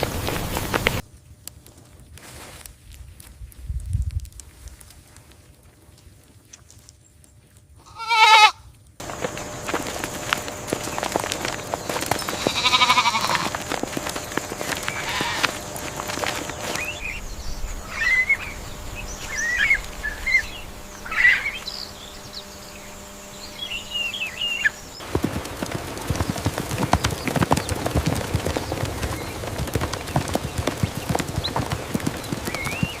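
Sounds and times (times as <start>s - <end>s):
small bird chirping: 10.4s - 25.0s.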